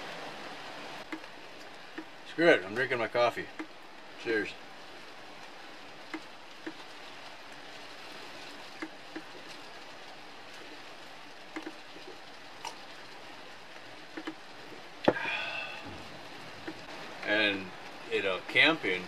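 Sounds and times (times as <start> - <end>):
rain on a tin roof: 0.0 - 19.0
sharp drip ticks: 1.0 - 4.0, 5.4 - 7.7, 8.7 - 9.6, 11.4 - 14.6.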